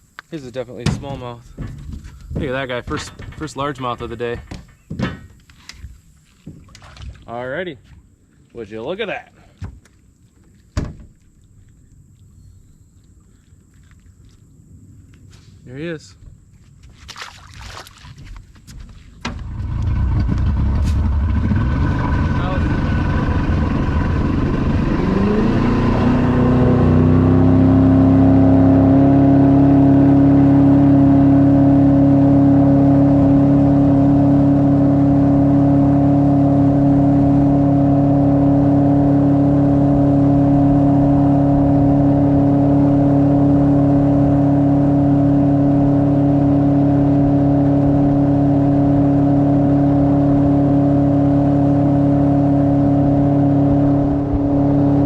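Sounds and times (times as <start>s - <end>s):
outboard motor running: 19.3s - 55.0s.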